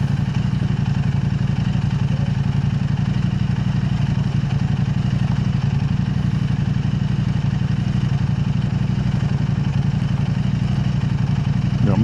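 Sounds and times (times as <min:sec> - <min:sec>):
motorcycle engine running steadily: 0:00.0 - 0:12.0.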